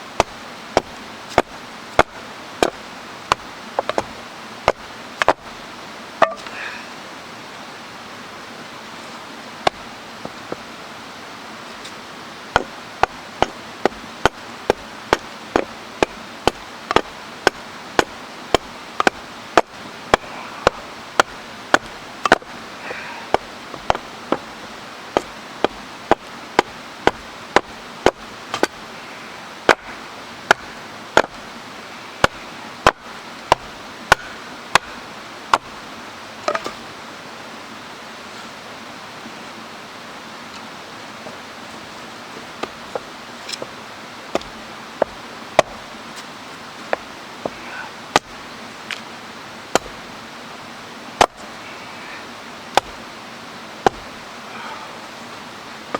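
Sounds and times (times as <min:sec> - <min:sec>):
stream rushing: 0:00.0 - 0:55.9
wood chopping knocks: 0:00.2 - 0:04.1, 0:04.7 - 0:05.4, 0:06.2 - 0:06.5, 0:12.6 - 0:24.5, 0:25.2 - 0:28.8, 0:29.7 - 0:31.4, 0:32.2 - 0:35.7, 0:44.3 - 0:45.8, 0:49.8 - 0:50.0, 0:51.2 - 0:51.4, 0:52.7 - 0:53.0, 0:53.8 - 0:54.1.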